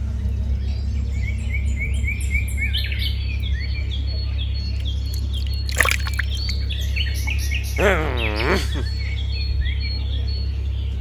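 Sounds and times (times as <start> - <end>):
steady low rumble: 0.0 - 7.9
small birds chirping: 0.0 - 11.0.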